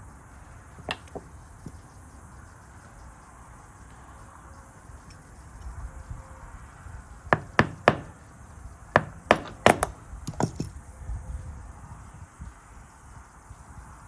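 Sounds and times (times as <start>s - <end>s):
metal lock parts clicking: 0.8s - 2.0s, 9.0s - 10.8s.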